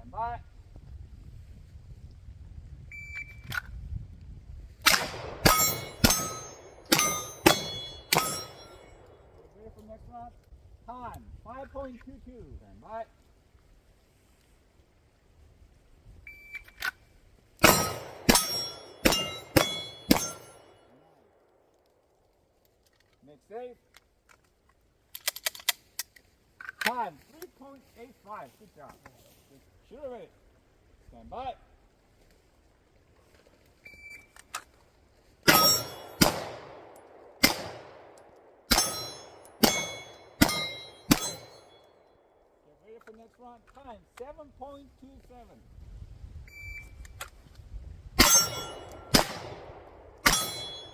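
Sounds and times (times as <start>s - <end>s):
pistol shots: 4.8s - 9.0s, 17.6s - 20.6s, 35.5s - 41.7s, 48.2s - 50.9s
steel target ringing: 4.9s - 9.1s, 17.6s - 20.8s, 35.5s - 36.5s, 38.7s - 41.9s, 48.2s - 49.4s, 50.2s - 50.9s.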